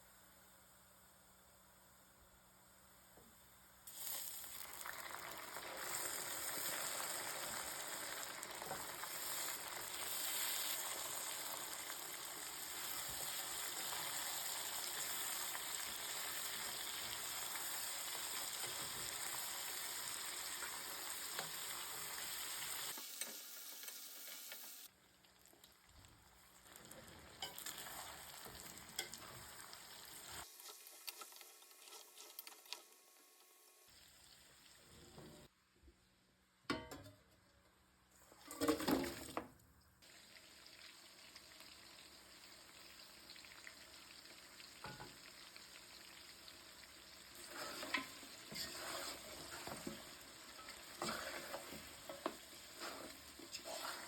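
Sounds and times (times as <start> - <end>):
food sizzling in hot oil: 3.8 - 24.9, 26.3 - 34.7, 40.0 - 54.0
stirring and scraping in pot: 47.3 - 54.0.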